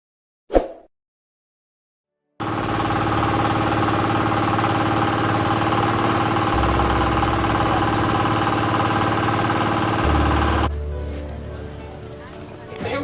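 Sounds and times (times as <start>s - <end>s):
large engine running: 2.4s - 11.9s
deep low drone: 2.6s - 12.2s.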